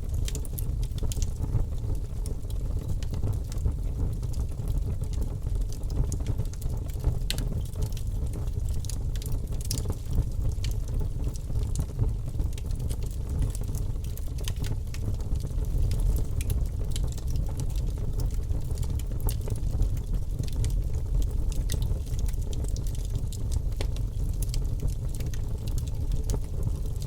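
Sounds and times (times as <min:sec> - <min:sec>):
fire rumbling: 0:00.0 - 0:27.0
wood crackling and popping: 0:00.1 - 0:27.0.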